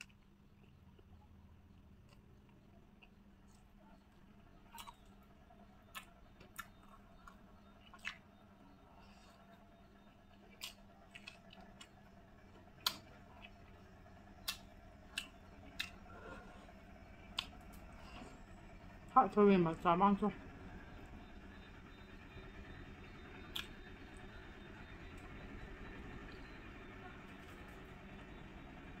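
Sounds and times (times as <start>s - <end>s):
person chewing with mouth smacks: 5.9s - 8.3s, 10.3s - 12.0s, 14.4s - 16.0s.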